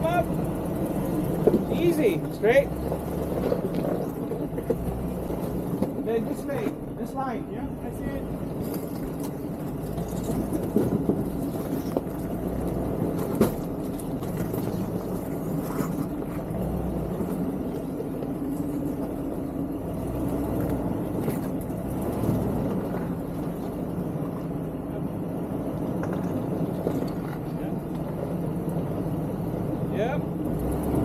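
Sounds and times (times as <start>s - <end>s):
low engine hum: 0.0s - 31.0s.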